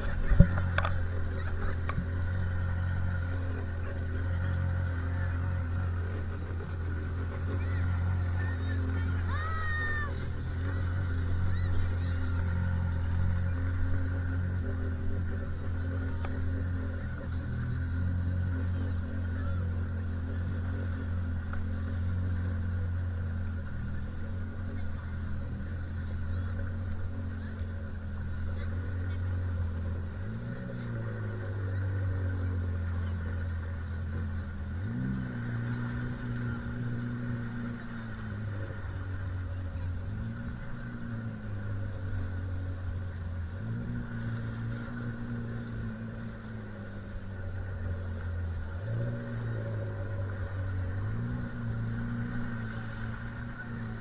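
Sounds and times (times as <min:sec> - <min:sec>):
motorboat engine running: 0:00.0 - 0:54.0.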